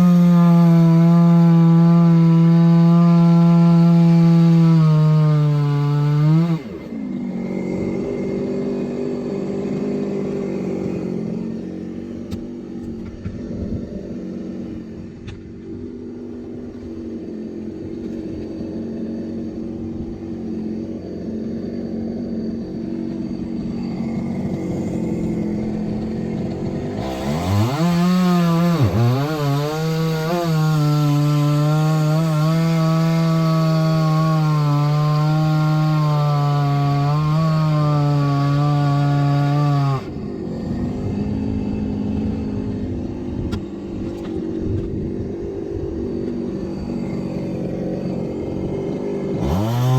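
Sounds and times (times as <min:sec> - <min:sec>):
chainsaw revving: 0:00.0 - 0:49.9
engine idling: 0:06.9 - 0:27.1.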